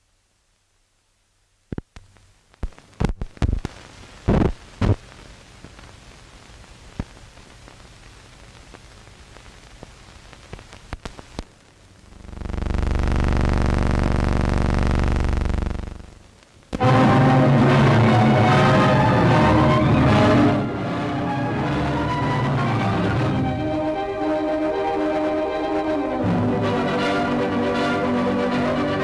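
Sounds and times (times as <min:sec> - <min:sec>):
film soundtrack hiss: 0:00.0 - 0:29.0
clicks and pops: 0:01.7 - 0:05.0, 0:09.8 - 0:11.5
loud buzzing hum: 0:12.0 - 0:24.7.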